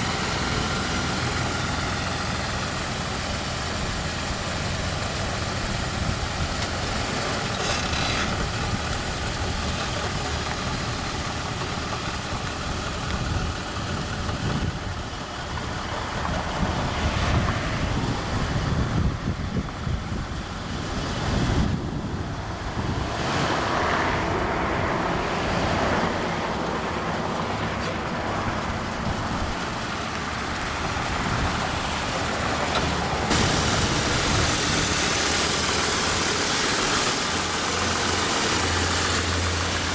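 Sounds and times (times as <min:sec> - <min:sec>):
car engine idling: 0:00.0 - 0:22.9, 0:25.1 - 0:39.9
bright hiss: 0:33.3 - 0:39.0.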